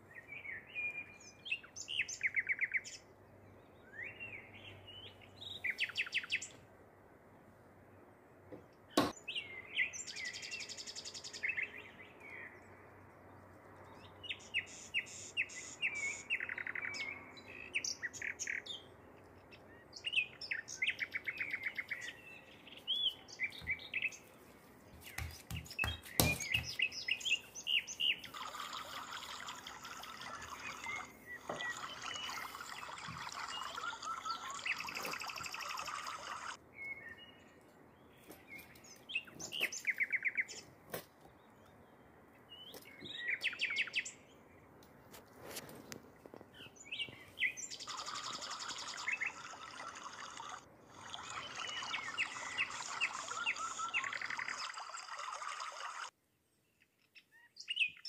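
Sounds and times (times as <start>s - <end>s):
small birds chirping and twittering: 0.0s - 6.7s, 8.5s - 58.0s
sharp knocks: 25.1s - 26.8s.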